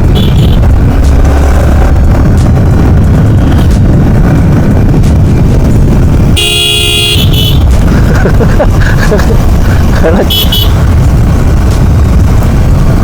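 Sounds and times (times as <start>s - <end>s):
horn honking: 0.0s - 1.6s, 6.2s - 7.8s, 10.2s - 10.9s
vehicle engine and wind rumble: 0.0s - 13.0s.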